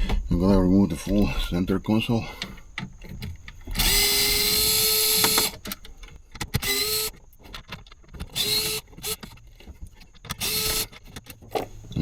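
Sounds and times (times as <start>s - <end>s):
cordless power screwdriver whine: 3.6s - 5.8s, 6.4s - 7.2s, 8.1s - 9.4s, 10.2s - 11.3s.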